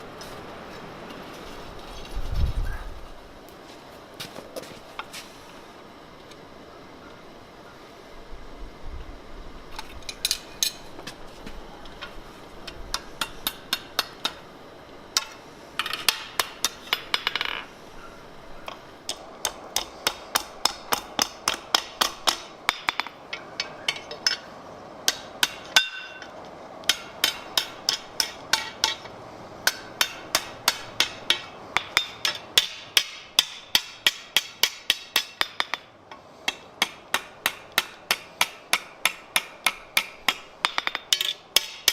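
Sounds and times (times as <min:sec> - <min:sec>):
hammer striking steel on anvil: 0:12.9 - 0:14.4, 0:16.1 - 0:17.6, 0:19.1 - 0:41.9.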